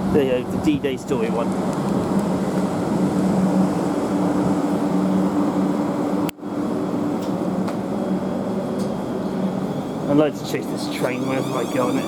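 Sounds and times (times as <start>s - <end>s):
electric train pulling away: 7.9s - 12.0s.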